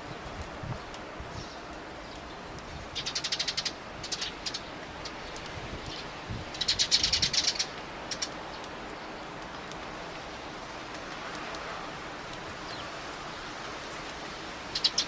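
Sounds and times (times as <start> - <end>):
sparrows chirping: 1.4 - 9.7, 14.7 - 15.0.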